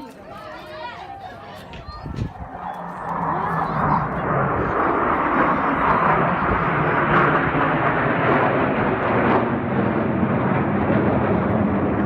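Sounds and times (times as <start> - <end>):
plane engine noise: 0.0 - 12.0.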